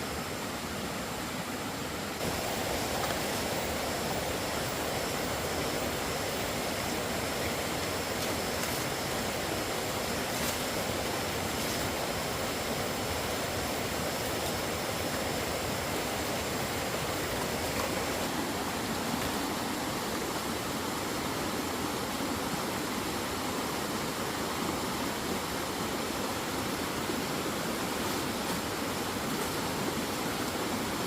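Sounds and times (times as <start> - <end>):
water rushing: 0.0 - 31.0.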